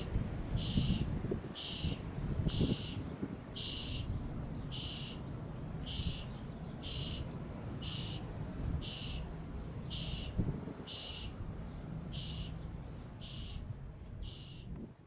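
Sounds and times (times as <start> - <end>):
wind rumbling on microphone: 0.0 - 4.7, 10.2 - 11.7.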